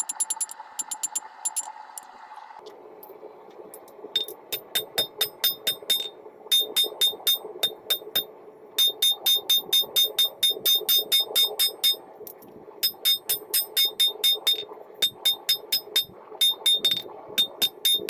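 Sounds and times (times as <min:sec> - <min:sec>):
hammer striking steel on anvil: 0:04.2 - 0:08.3, 0:12.8 - 0:18.0.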